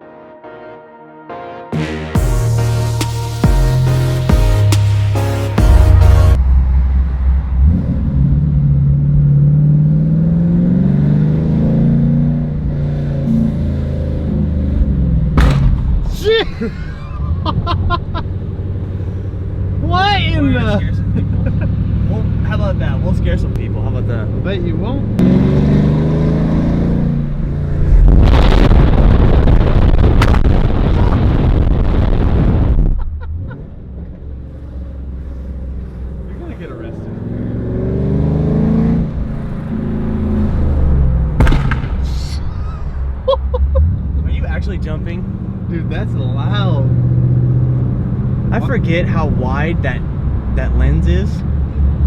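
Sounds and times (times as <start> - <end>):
car engine accelerating: 2.2 - 16.2, 16.8 - 52.0
exhaust backfire crack: 15.0 - 16.4, 27.8 - 33.4, 41.2 - 43.2.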